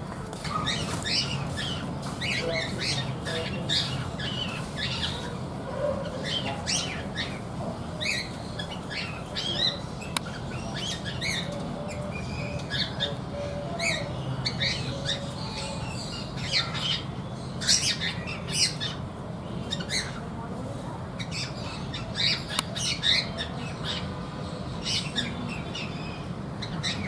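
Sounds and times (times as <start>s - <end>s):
cockatiels squawking: 0.5s - 5.4s, 21.2s - 24.1s.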